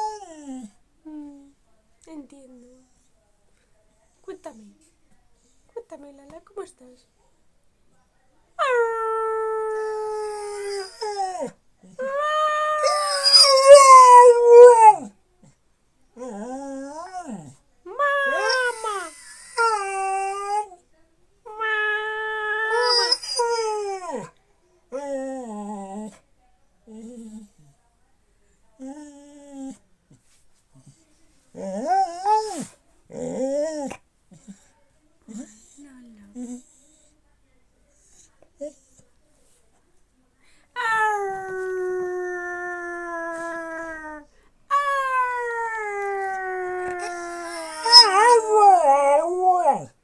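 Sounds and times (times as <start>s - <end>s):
dog howling: 12.0s - 15.1s, 17.9s - 20.6s, 21.8s - 24.2s, 40.9s - 49.9s.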